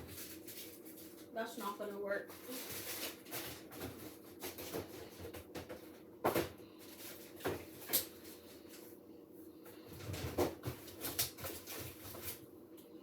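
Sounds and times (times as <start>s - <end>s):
kitchen items knocking and clattering: 0.0s - 0.6s, 1.6s - 8.2s, 9.9s - 12.4s
steady hum: 0.0s - 13.0s.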